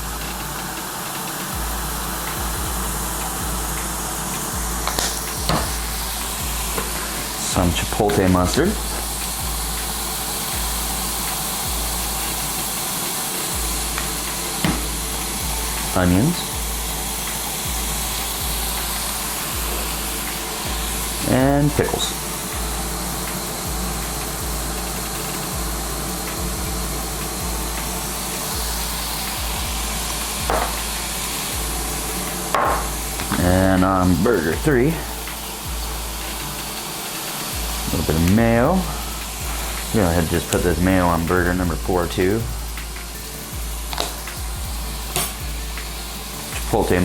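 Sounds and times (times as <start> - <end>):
cooking appliances hissing: 0.0 - 47.0
soft low thumps: 13.6 - 19.0.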